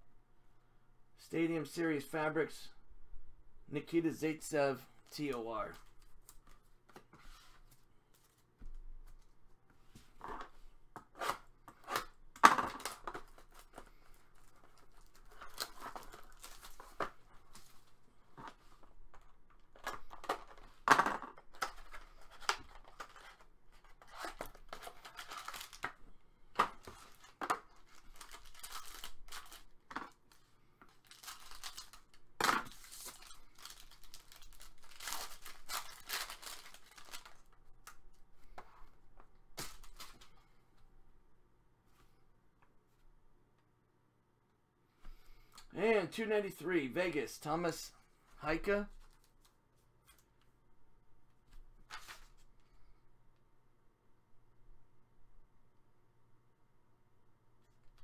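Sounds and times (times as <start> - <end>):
packaging tearing and crinkling: 14.7 - 17.0, 21.6 - 26.0, 26.8 - 37.6.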